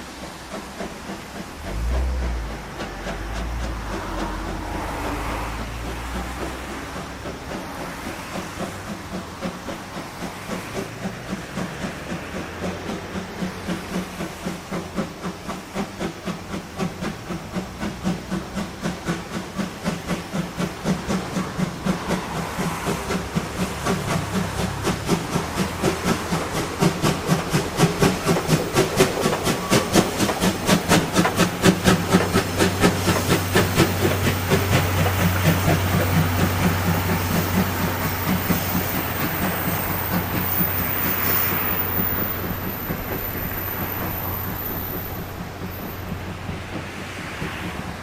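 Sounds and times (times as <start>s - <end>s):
steam hissing: 0.0s - 48.0s
steam locomotive chuffing: 0.0s - 48.0s.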